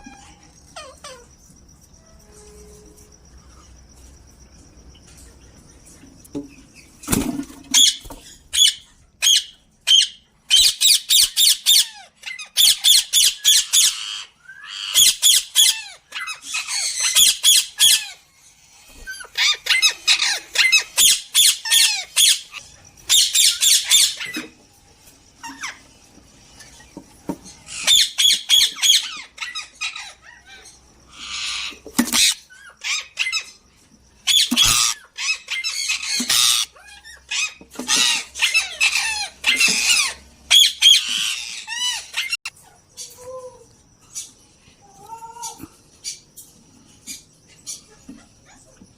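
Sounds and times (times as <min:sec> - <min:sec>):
parrots squawking: 0:00.0 - 0:01.4, 0:07.7 - 0:24.7, 0:25.4 - 0:33.6, 0:34.2 - 0:43.5.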